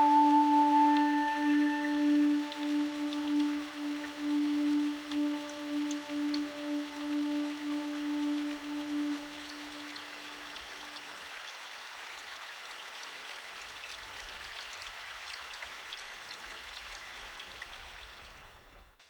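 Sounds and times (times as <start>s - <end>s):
low held tone: 0.0s - 10.4s
steady rainfall: 0.0s - 18.7s.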